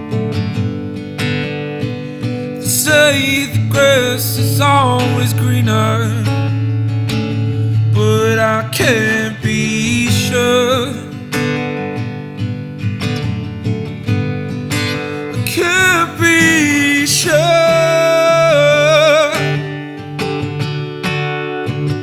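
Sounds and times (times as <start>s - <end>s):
acoustic guitar playing: 0.0s - 22.0s
person singing wordless notes: 15.4s - 19.7s.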